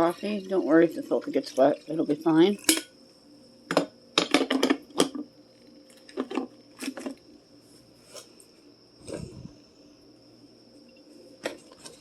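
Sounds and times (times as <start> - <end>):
kitchen items clicking and clinking: 3.7 - 5.2.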